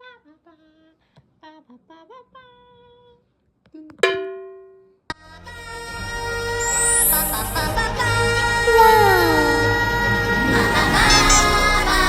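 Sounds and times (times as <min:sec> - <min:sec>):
music: 0:05.1 - 0:12.0
loud ringing note: 0:06.6 - 0:09.7
woman humming a tune: 0:06.6 - 0:11.7.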